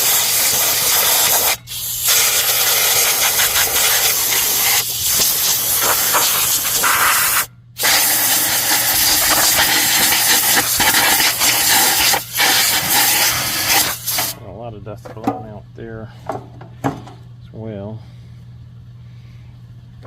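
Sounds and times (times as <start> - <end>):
compressed air blowgun hissing: 0.0 - 14.4.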